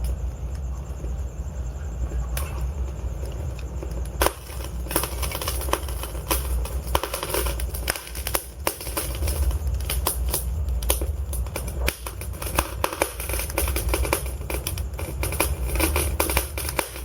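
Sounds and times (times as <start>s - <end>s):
low rumble of flames: 0.0s - 17.0s
logs crackling and popping: 2.4s - 17.0s.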